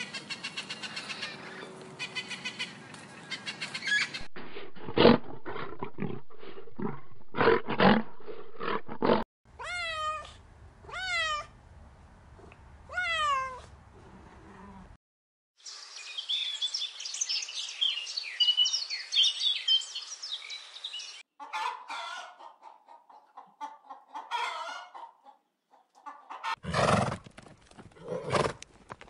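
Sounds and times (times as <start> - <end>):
cat meowing: 9.6 - 11.5, 12.9 - 13.7.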